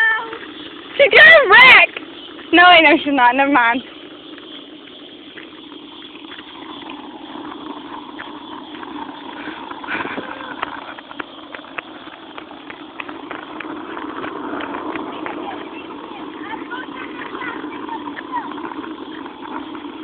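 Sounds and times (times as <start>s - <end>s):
bicycle tyres rumbling on rough road: 0.0s - 20.0s.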